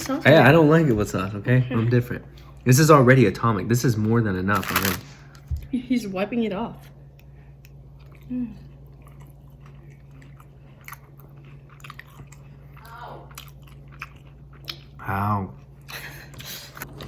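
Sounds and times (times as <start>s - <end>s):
person chewing food: 7.0s - 17.0s.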